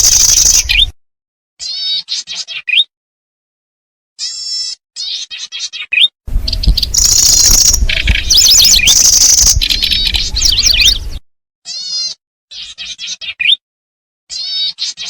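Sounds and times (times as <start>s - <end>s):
high buzzing bird trills: 0.0s - 0.9s, 6.3s - 12.7s
sliding bird chirps: 0.0s - 0.9s, 6.4s - 11.2s
low rumble: 6.3s - 11.2s.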